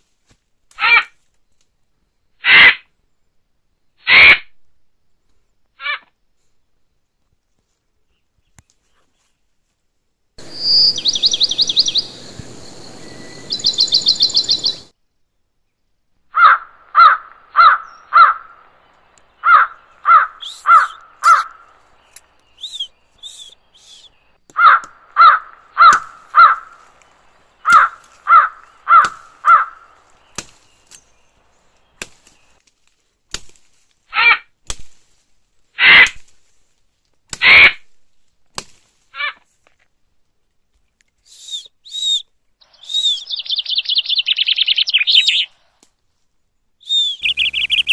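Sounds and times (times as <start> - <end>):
loud bird calls: 10.4 - 14.9, 16.3 - 32.6, 41.8 - 45.7, 46.8 - 47.9.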